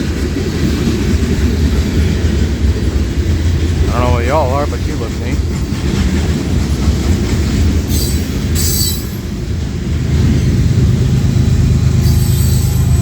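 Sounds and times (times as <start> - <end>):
freight train rumbling past: 0.0 - 13.0
train wheels squealing: 7.8 - 9.4, 11.9 - 13.0.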